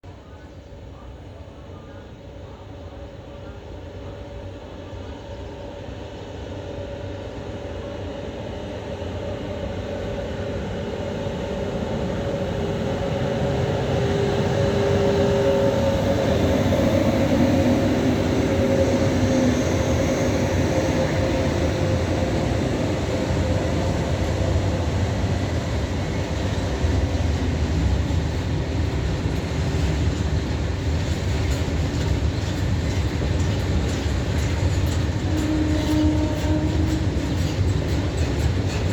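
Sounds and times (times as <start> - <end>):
train locomotive humming: 0.2 - 38.9
wheels clicking over rail joints: 27.8 - 38.9.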